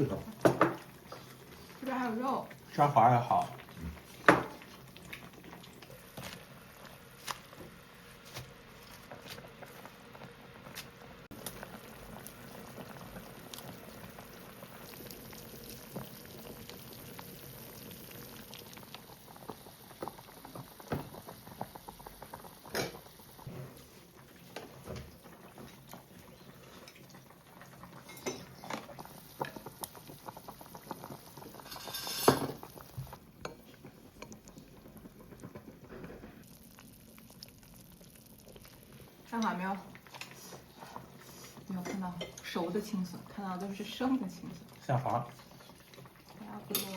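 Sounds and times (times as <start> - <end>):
broth bubbling: 0.0 - 7.3, 11.3 - 31.8, 32.6 - 46.8
utensils clinking on bowls: 28.0 - 28.5, 31.6 - 32.6.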